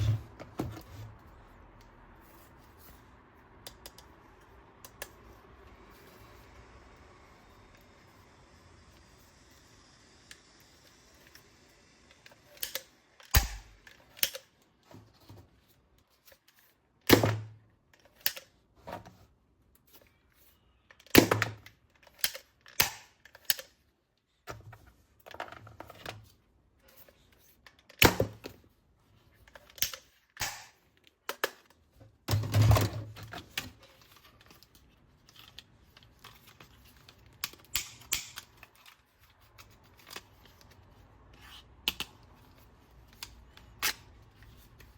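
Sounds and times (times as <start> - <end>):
plastic toy parts clicking: 12.4 - 14.6, 17.9 - 18.6, 20.9 - 23.8, 29.4 - 31.8, 33.4 - 40.8.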